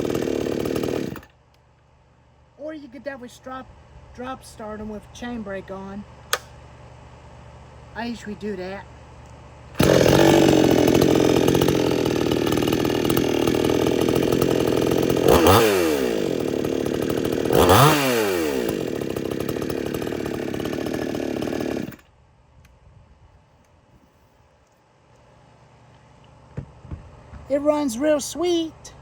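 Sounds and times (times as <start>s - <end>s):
chainsaw idling and revving: 0.0s - 1.4s, 9.8s - 22.1s.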